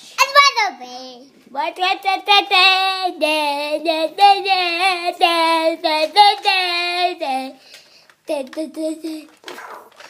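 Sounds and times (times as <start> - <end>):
child singing held notes: 1.5 - 7.6, 8.3 - 9.4.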